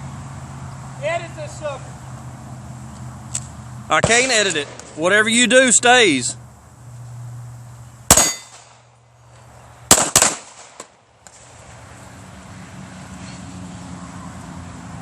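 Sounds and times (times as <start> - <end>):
gunshots: 3.9 - 5.2, 8.1 - 8.8, 9.9 - 11.0.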